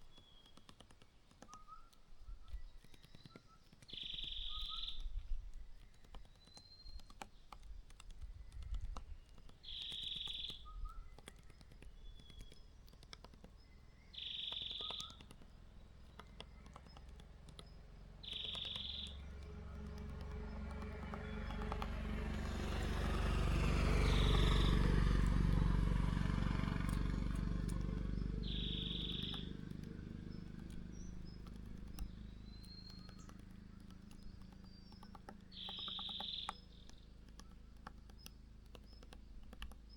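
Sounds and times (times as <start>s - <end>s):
small birds chirping: 0.0s - 39.9s
short high bird call: 28.4s - 29.4s.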